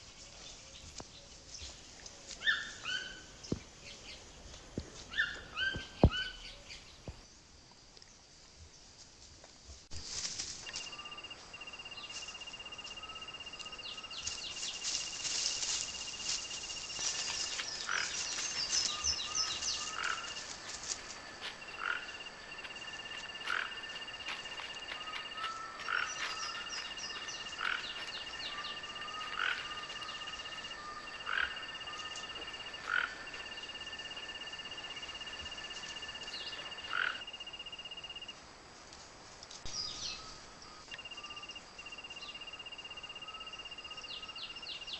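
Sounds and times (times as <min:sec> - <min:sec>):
high-pitched insect trills: 0:10.0 - 0:38.4, 0:39.7 - 0:44.9
short frog calls: 0:10.6 - 0:38.3.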